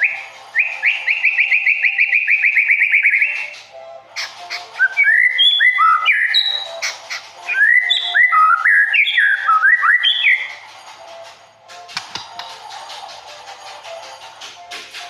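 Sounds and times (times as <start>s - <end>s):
songbird singing whistled notes: 0.0s - 3.9s, 4.5s - 10.5s.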